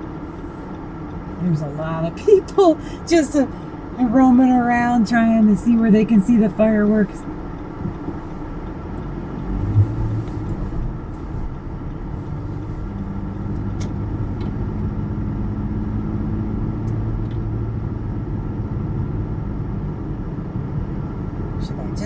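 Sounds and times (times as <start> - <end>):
faint hum: 0.0 - 14.4
car engine and road rumble: 0.0 - 22.0.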